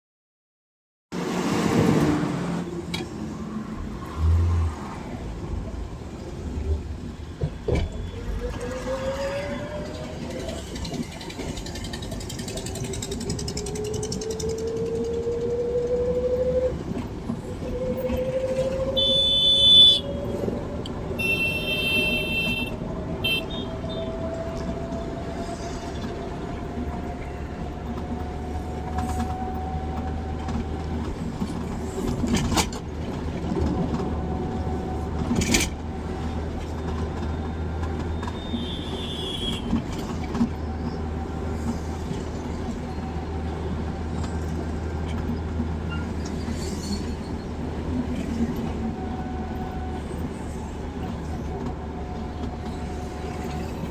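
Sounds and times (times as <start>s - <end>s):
car horn honks: 19.0s - 20.1s, 21.2s - 24.0s, 38.4s - 39.8s.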